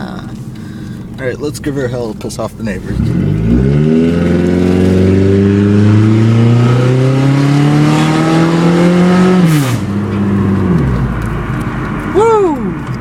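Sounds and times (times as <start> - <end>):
unmuffled car engine revving: 0.0 - 13.0.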